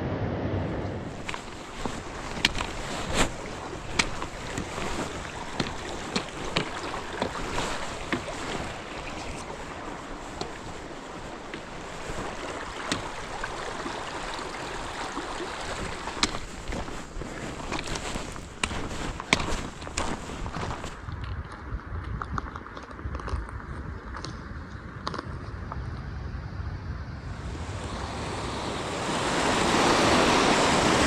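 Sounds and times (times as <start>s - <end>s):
wind rushing over microphone: 0.0s - 31.0s
footsteps on rocky trail: 1.0s - 24.2s.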